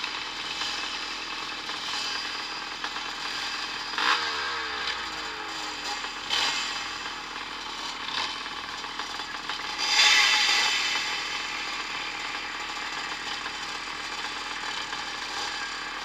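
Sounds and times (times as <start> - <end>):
motocross bikes racing: 3.2 - 7.2, 9.0 - 16.0.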